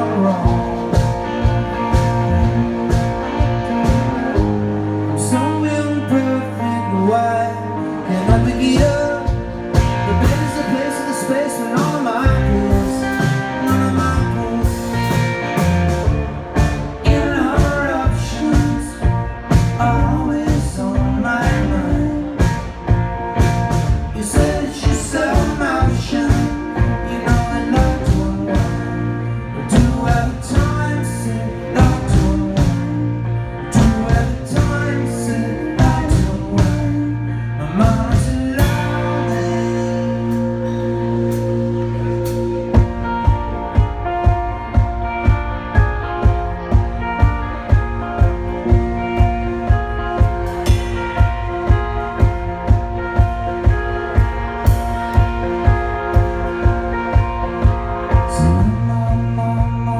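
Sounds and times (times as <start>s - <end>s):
electric guitar lead line: 0.0s - 59.9s
live rock band playing: 0.0s - 59.9s.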